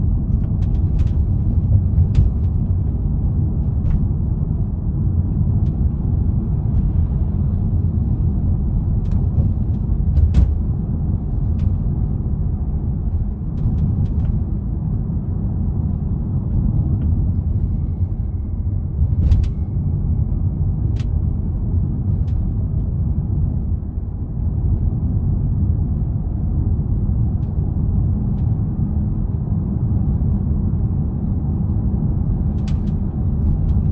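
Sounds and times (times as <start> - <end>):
car road rumble: 0.0 - 33.9.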